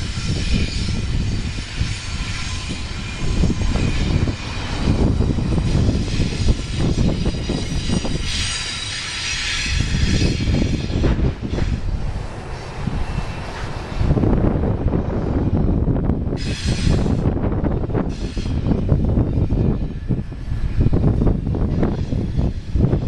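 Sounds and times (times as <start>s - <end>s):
train hiss: 0.0s - 14.5s, 16.3s - 23.0s
freight train wheels rumbling: 0.0s - 23.0s.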